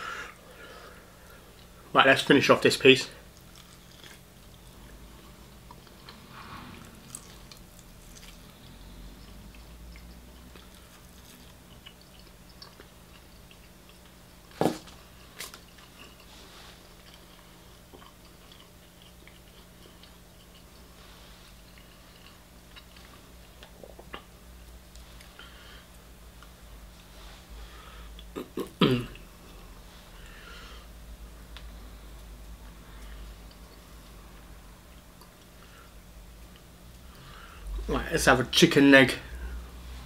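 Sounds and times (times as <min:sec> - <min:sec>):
chewing crispy chicken: 0:03.2 - 0:26.6.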